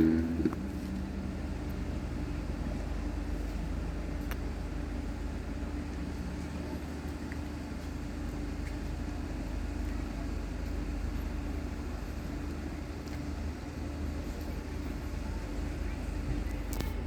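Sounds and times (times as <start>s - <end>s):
constant hum: 0.0s - 17.0s.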